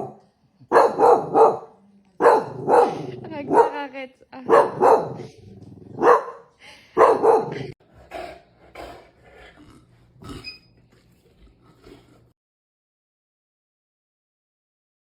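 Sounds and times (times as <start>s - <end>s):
dog barking: 0.0s - 3.8s, 4.5s - 5.3s, 6.0s - 7.8s.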